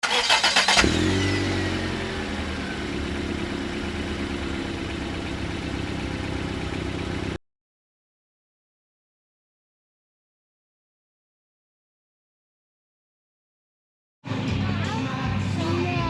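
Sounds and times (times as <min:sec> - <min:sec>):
vehicle engine revving and idling: 0:00.0 - 0:07.4.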